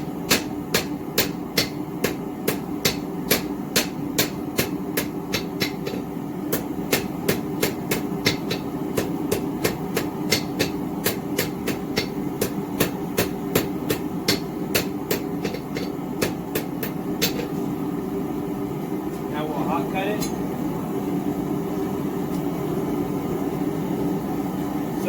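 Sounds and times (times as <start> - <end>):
hammer striking steel on anvil: 0.0 - 17.6
steady hum: 0.0 - 25.0.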